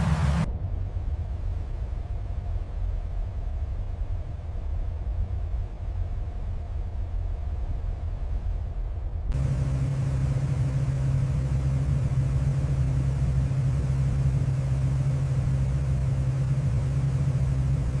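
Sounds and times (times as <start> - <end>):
machine drone: 0.0 - 0.6, 9.3 - 18.0.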